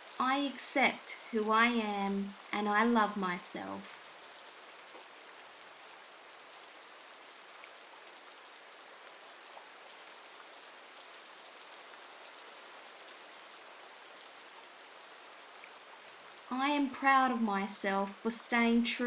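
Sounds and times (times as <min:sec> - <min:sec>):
rain falling on a surface: 0:00.0 - 0:19.0
faint raindrop ticks: 0:02.1 - 0:19.0.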